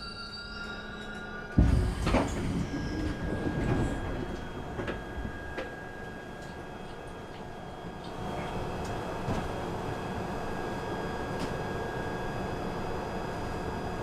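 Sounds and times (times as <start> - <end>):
train whine: 0.0 - 14.0
loud thump: 1.6 - 4.2.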